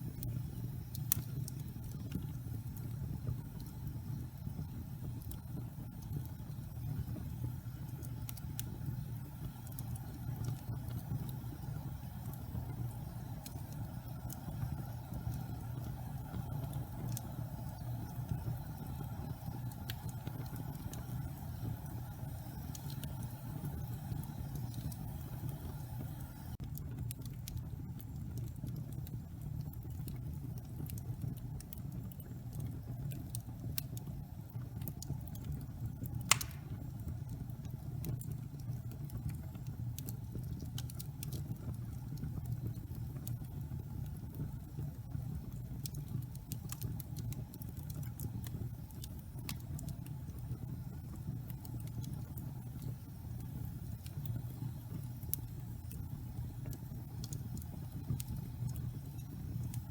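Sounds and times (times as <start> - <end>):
fire crackling and snapping: 0.0 - 59.9
flames roaring: 0.0 - 59.9
loud sharp pop: 36.3 - 36.8.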